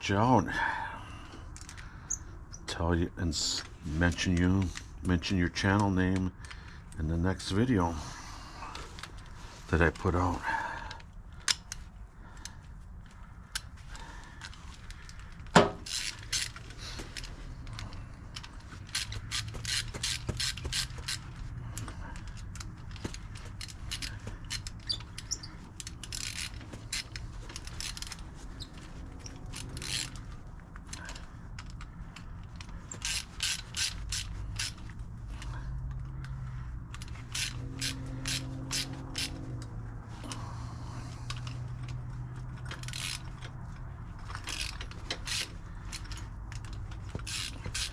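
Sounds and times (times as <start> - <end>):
ratchet wrench clicking: 13.5 - 40.4, 41.1 - 47.9.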